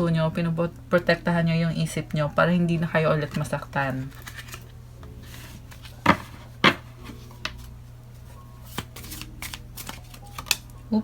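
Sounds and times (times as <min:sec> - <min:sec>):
low steady hum: 0:00.0 - 0:11.0
cards clicking and rubbing: 0:03.3 - 0:07.8, 0:08.6 - 0:10.8
cards tapping on a table: 0:06.0 - 0:07.6.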